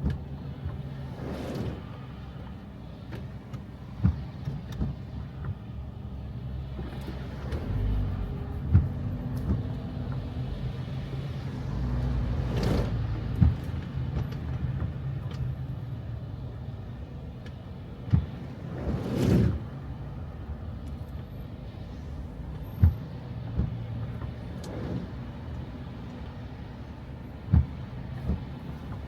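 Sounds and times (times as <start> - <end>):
car engine humming: 6.7 - 12.8.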